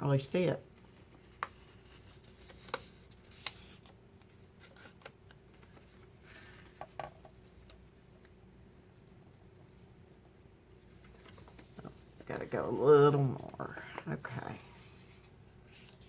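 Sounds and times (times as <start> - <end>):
paper rustling: 0.8 - 7.8, 10.8 - 16.0.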